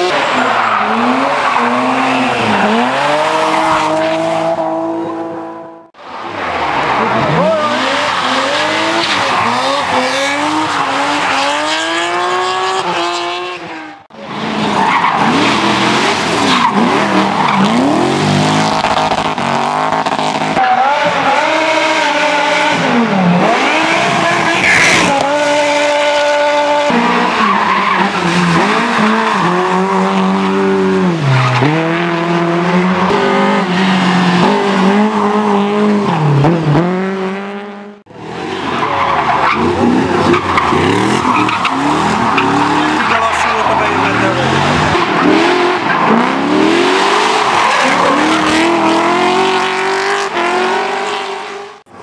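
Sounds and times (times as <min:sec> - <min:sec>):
tyre squeal and skidding: 0:00.0 - 0:05.2, 0:06.1 - 0:22.8, 0:23.5 - 0:31.9, 0:38.4 - 0:49.7
car engines revving: 0:00.0 - 0:52.0.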